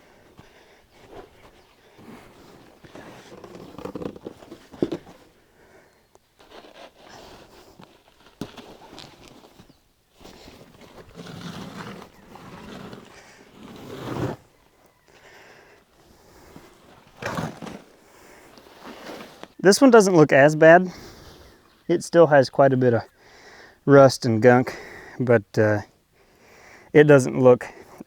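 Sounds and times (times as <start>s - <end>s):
tire scraping on steel rim: 8.0s - 14.6s, 16.4s - 19.8s.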